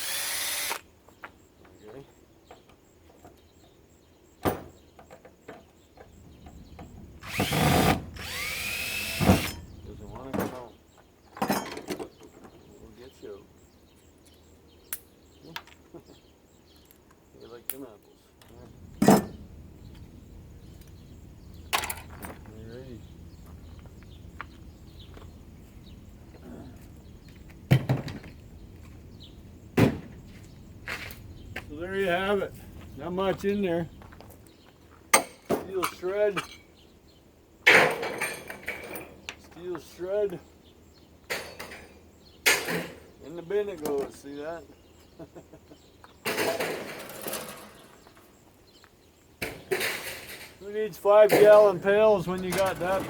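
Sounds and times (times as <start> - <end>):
power drill whining: 0.0 - 0.8, 7.2 - 9.7.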